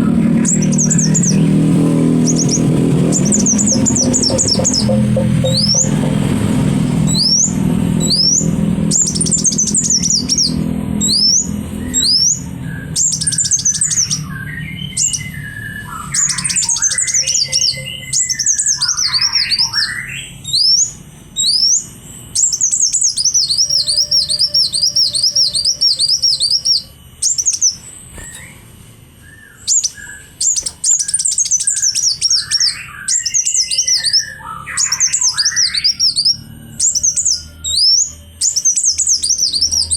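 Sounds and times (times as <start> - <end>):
low rumble: 0.0 - 19.0
songbird singing: 0.0 - 39.9.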